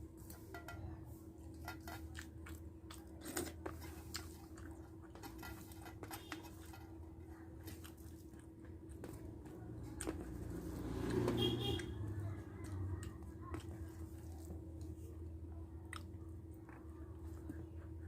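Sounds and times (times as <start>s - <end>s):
steady low hum: 0.0s - 18.0s
person chewing: 1.5s - 9.3s, 15.9s - 17.5s.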